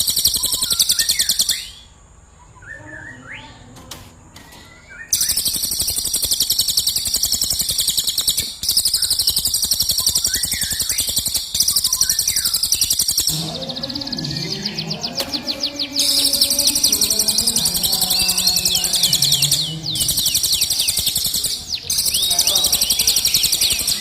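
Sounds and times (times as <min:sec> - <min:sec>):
fast high-pitched bird trill: 0:00.0 - 0:01.9, 0:04.4 - 0:24.0
songbird chirps: 0:00.0 - 0:24.0
lower quieter sound: 0:13.3 - 0:24.0.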